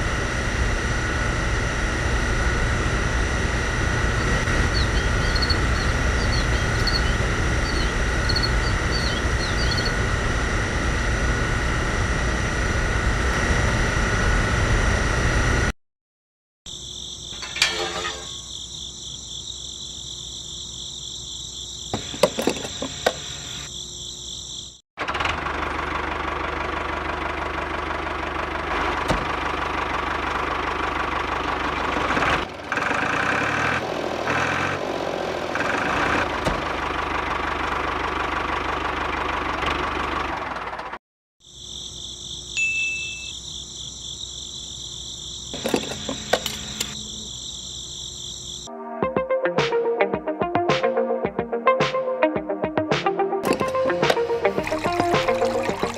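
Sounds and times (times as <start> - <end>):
motor running: 0.0 - 15.0, 22.0 - 23.7, 45.5 - 47.2
insects chirring: 4.2 - 10.1, 16.7 - 24.8, 41.4 - 48.7.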